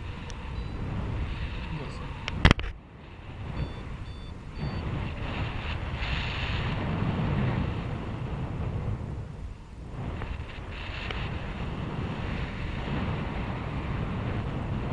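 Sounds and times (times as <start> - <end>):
wind buffeting microphone: 0.0 - 14.9
short high beeps: 0.5 - 0.8, 3.5 - 5.0.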